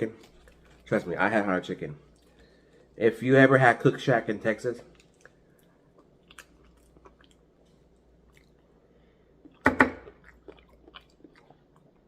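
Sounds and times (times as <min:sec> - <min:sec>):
person chewing: 0:00.0 - 0:01.0, 0:04.9 - 0:12.0.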